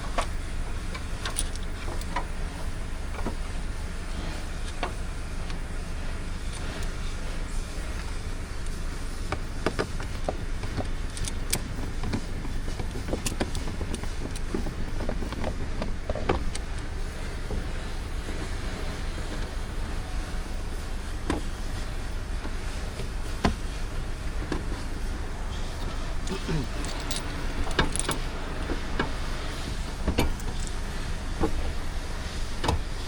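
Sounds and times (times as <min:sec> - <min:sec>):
steady low rumble: 0:00.0 - 0:33.0
hand tools clicking and knocking: 0:25.8 - 0:29.2.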